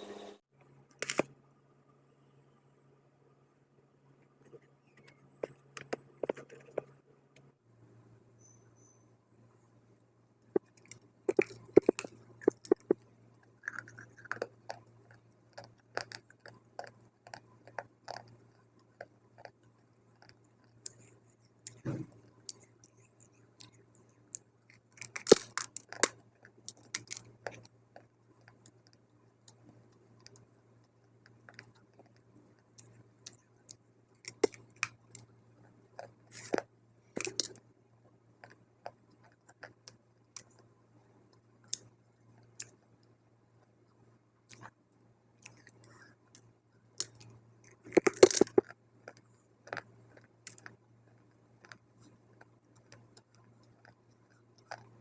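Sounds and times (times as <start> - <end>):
crunching dry clay chewed: 10.6 - 37.6, 38.4 - 40.7, 44.5 - 44.8, 45.4 - 55.0.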